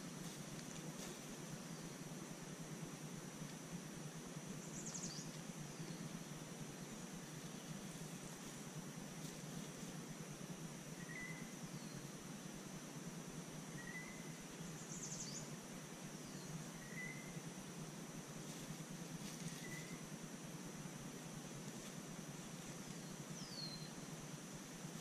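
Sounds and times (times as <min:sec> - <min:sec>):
distant birds chirping: 0:00.0 - 0:12.4, 0:13.6 - 0:17.5, 0:18.8 - 0:20.2, 0:22.3 - 0:25.0
steady hiss: 0:00.0 - 0:25.0
bird trill: 0:13.8 - 0:15.5, 0:16.3 - 0:17.4.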